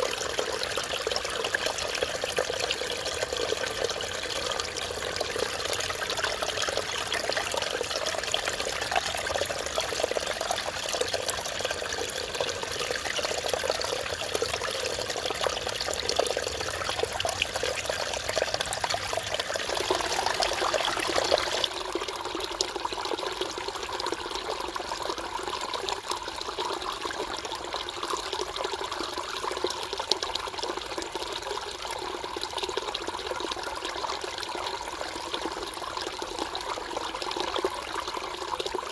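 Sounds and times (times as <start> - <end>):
stream water splashing over rocks: 0.0 - 23.0.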